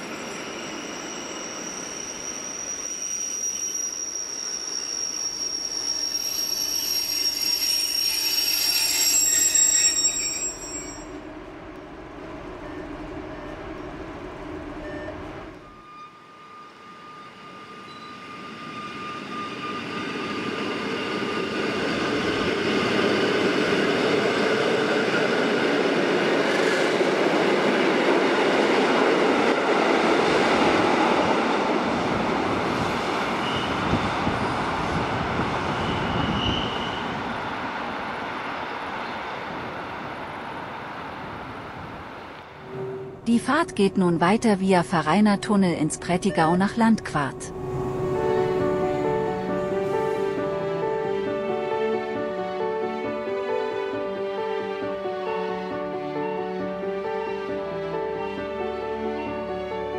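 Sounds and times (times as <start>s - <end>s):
train wheel and brake squeal: 0.0s - 11.3s, 14.8s - 24.4s, 32.8s - 37.4s
train passing with whine: 0.0s - 59.9s
wheels rumbling on rail: 19.7s - 46.3s, 47.0s - 51.7s.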